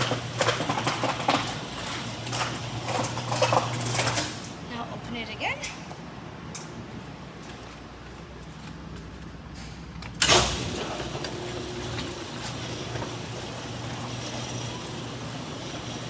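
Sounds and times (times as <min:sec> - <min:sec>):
garage door opener rumble: 0:00.0 - 0:04.7, 0:10.1 - 0:16.0
garage door clunk: 0:10.1 - 0:16.0.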